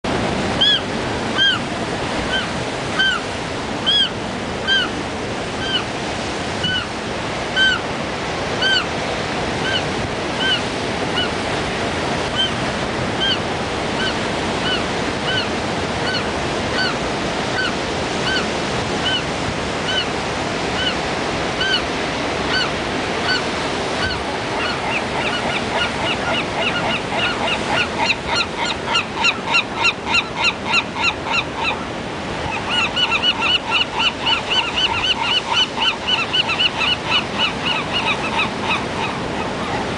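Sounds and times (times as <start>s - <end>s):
surf washing: 0.0s - 39.9s
gulls crying: 0.1s - 39.9s.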